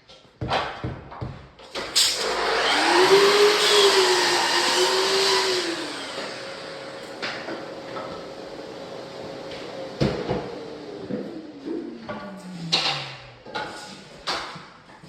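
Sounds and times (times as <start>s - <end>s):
electric saw cutting timber: 1.8s - 8.7s.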